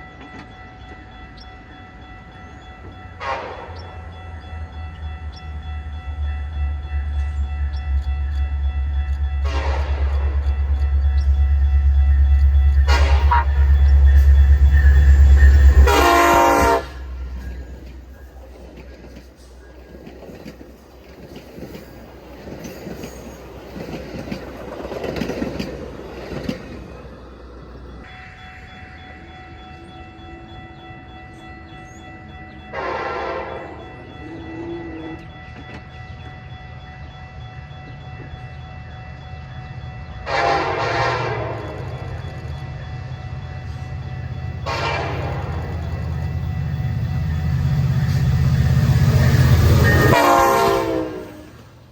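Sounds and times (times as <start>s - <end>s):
diesel locomotive rumbling: 0.0s - 51.9s
train horn blasts: 3.1s - 4.0s, 8.9s - 17.5s, 32.7s - 35.4s, 40.1s - 41.8s, 44.6s - 46.4s, 49.7s - 51.8s
train cars rolling clatter: 4.9s - 29.3s.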